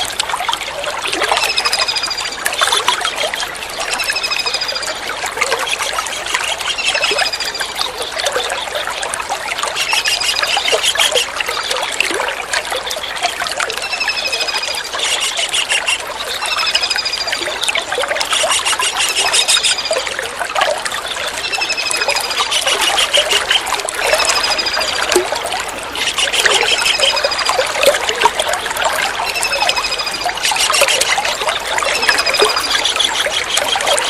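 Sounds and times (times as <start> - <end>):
trickling water: 0.0 - 34.0
kingfisher calling: 9.7 - 11.3, 13.0 - 17.6, 18.2 - 20.1, 21.0 - 27.8, 29.0 - 34.0.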